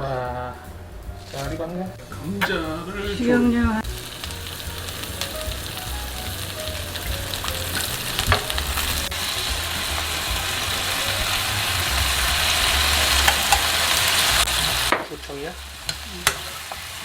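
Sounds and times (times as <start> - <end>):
potatoes sizzling in oil: 3.8 - 17.0.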